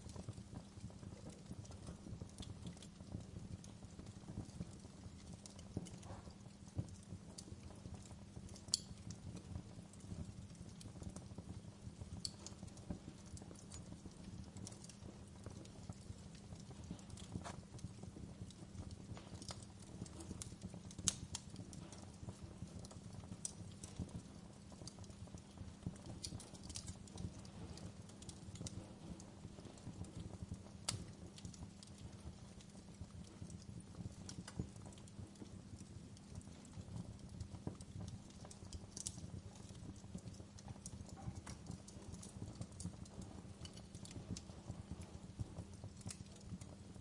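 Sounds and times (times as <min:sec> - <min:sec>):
campfire crackling: 0:00.0 - 0:47.0
sharp pops from fire: 0:00.0 - 0:47.0.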